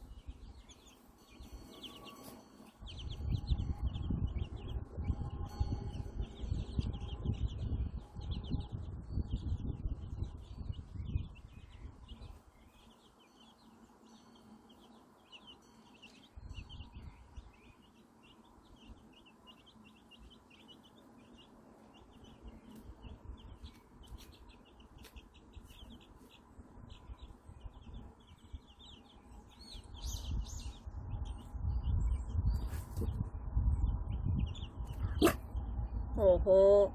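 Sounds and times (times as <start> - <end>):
chicks peeping: 0.0 - 36.9
low rumbling noise: 29.9 - 36.9.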